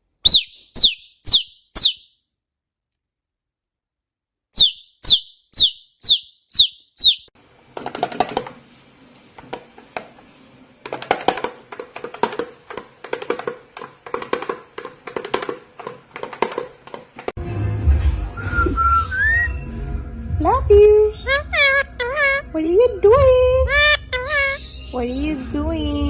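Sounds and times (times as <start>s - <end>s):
pet bird chirping: 0.1s - 2.2s, 4.6s - 7.3s.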